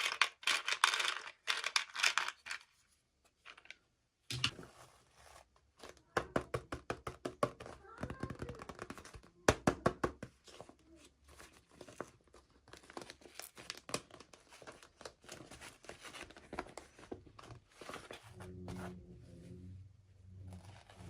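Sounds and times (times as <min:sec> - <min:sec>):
toy packaging crinkling: 0:00.0 - 0:02.8, 0:11.6 - 0:17.1.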